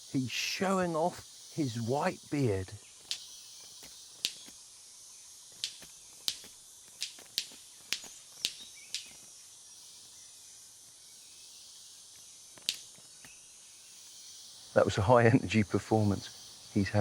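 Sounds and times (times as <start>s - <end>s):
insects hissing: 0.0s - 17.0s
bird wing snaps: 3.0s - 4.8s, 5.5s - 10.2s, 12.0s - 13.4s.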